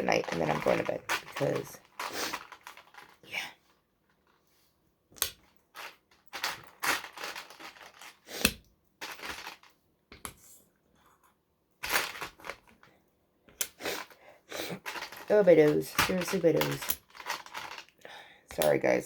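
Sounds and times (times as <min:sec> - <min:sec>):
plastic toy bricks clattering: 0:00.0 - 0:03.2, 0:05.8 - 0:08.2, 0:09.0 - 0:09.7, 0:11.8 - 0:12.8, 0:14.0 - 0:18.0.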